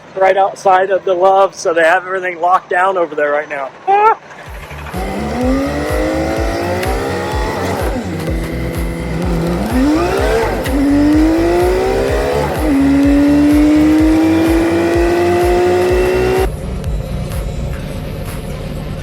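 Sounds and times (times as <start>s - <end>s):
background music with steady beat: 0.0s - 19.0s
car engine revving through gears: 4.3s - 18.5s.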